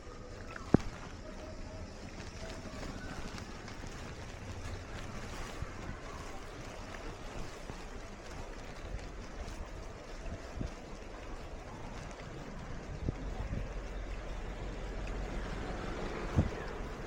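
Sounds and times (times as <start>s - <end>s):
floodwater sloshing and splashing: 0.0s - 17.0s
wind buffeting microphone: 0.0s - 17.0s.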